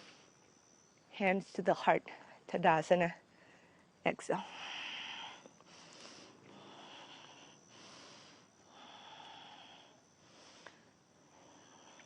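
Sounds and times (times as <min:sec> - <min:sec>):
faint high-pitched whine: 0:00.0 - 0:12.0
person breathing slowly: 0:03.3 - 0:12.0.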